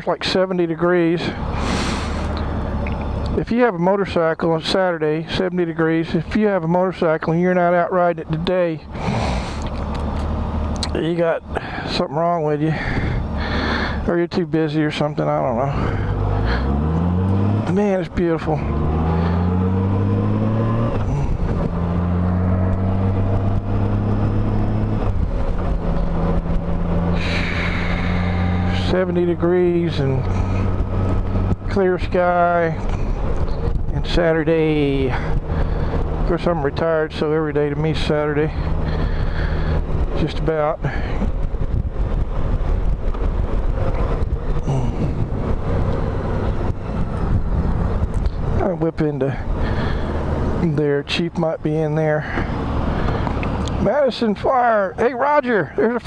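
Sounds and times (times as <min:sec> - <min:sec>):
wind and road noise: 0:00.0 - 0:56.0
motorcycle engine running: 0:15.8 - 0:50.7, 0:52.2 - 0:56.0.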